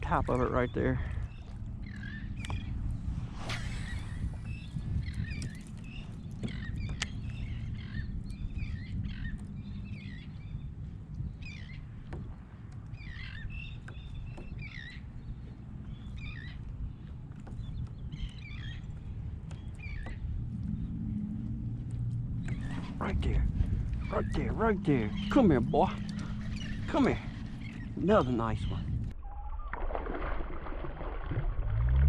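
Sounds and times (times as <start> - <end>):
low rumble: 0.0 - 11.5, 18.2 - 32.0
birds chirping: 0.0 - 29.2.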